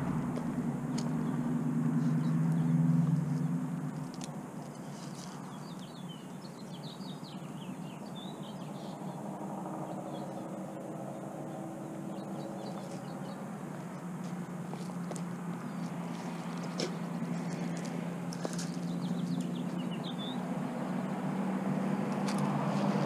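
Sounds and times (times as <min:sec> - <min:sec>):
steady low hum: 0:00.0 - 0:07.4
small birds twittering: 0:04.0 - 0:21.1.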